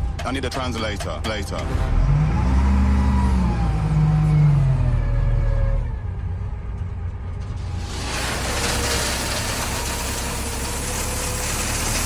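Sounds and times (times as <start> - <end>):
heavy vehicle engine running: 0.0 - 12.0
rushing hiss: 7.7 - 12.0.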